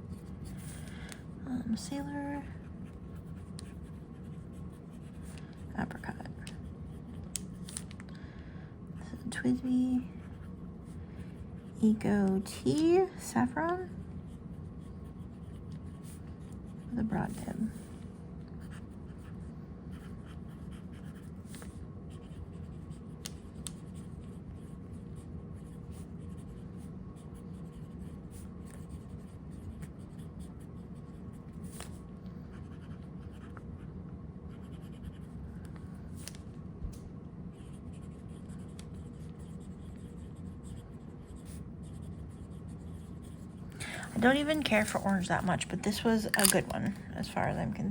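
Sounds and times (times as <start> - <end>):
steady low hum: 0.0 - 47.9
fountain pen scratching on paper: 2.4 - 7.2, 13.8 - 17.9, 18.6 - 33.8, 34.5 - 35.4, 37.5 - 45.4.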